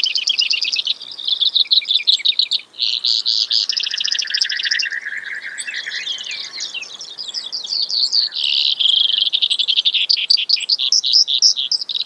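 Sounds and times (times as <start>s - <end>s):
sparrow singing trills: 0.0s - 12.0s.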